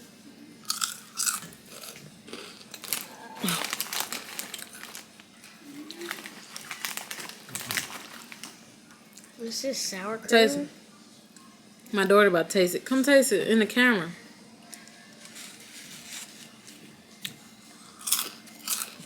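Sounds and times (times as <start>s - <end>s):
person chewing crunchy snacks: 0.6s - 8.5s, 17.9s - 19.0s.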